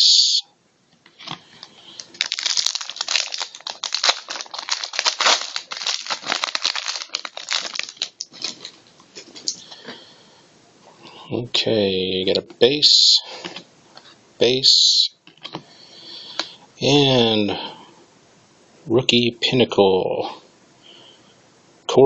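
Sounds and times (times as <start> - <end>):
plastic wrapper crinkling and tearing: 2.0 - 9.6.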